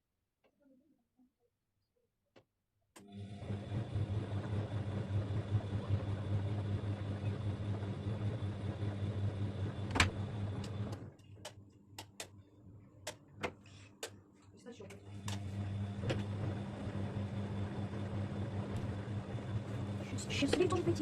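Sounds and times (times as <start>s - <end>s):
washing machine drum motor hum: 3.0s - 12.2s, 14.9s - 21.0s.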